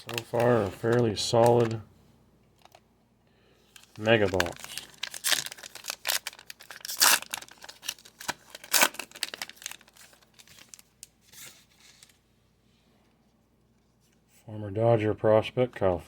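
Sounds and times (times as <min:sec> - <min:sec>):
foil wrapper tearing and crinkling: 0:00.0 - 0:01.8, 0:03.8 - 0:12.2.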